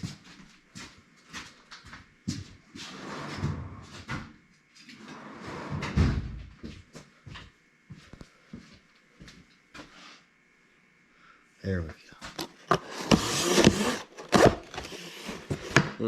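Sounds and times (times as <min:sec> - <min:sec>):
box scraping and rustling: 0:12.4 - 0:16.0.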